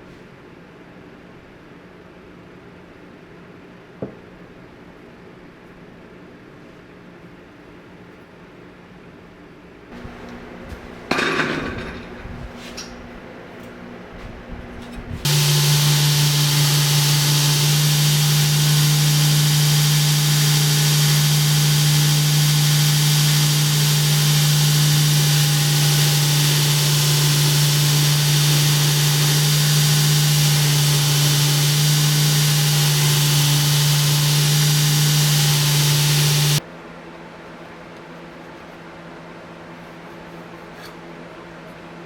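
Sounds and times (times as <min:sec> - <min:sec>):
machine motor hum with hiss: 0:15.2 - 0:36.6.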